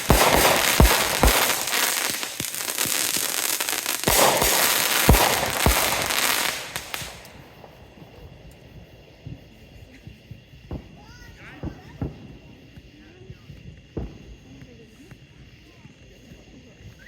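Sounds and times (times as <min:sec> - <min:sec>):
scattered pops: 0:00.0 - 0:09.7
fireworks bangs: 0:00.0 - 0:12.4
fireworks crackling: 0:00.0 - 0:12.6.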